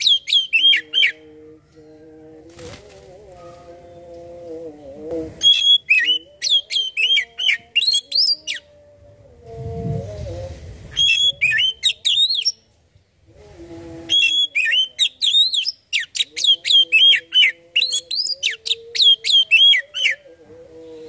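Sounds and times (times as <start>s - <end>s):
bird singing whistled notes: 0.0s - 1.2s, 5.4s - 8.6s, 11.0s - 12.6s, 14.1s - 20.2s.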